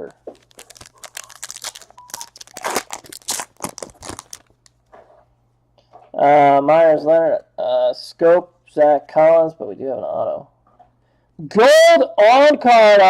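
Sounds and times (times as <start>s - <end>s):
card pack wrapper crinkling: 0.1s - 4.8s.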